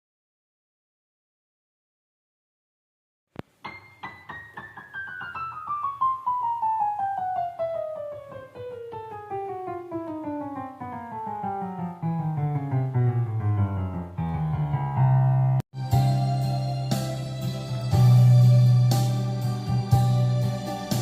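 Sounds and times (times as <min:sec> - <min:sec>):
keyboard piano notes descending: 0:03.7 - 0:21.0
low bass notes: 0:13.1 - 0:21.0.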